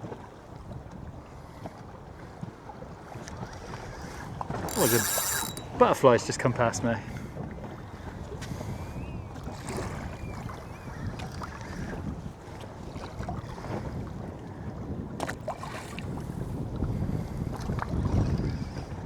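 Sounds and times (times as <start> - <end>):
wind buffeting microphone: 0.5 - 19.0
sharp click: 4.7 - 5.8
water slapping boat hull: 7.1 - 19.0.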